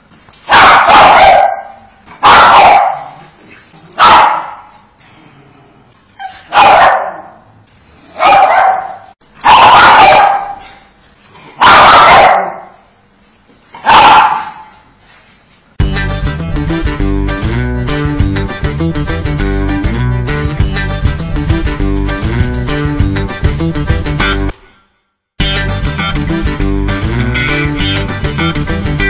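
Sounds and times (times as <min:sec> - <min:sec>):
dog barking loudly: 0:00.5 - 0:03.2, 0:04.0 - 0:04.7, 0:06.3 - 0:07.3, 0:08.2 - 0:10.7, 0:11.6 - 0:12.8, 0:13.8 - 0:14.7.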